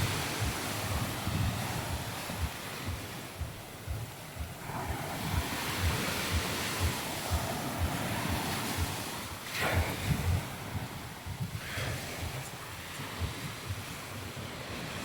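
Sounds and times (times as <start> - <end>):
short low thumps: 0.0 - 9.0
surf washing onto beach: 0.0 - 15.0
wind buffeting microphone: 0.0 - 15.0.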